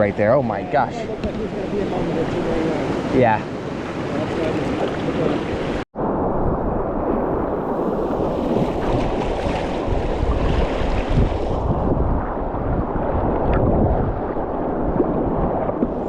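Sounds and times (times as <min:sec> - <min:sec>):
creek water rushing: 0:00.0 - 0:05.8
wind buffeting microphone: 0:00.0 - 0:16.0.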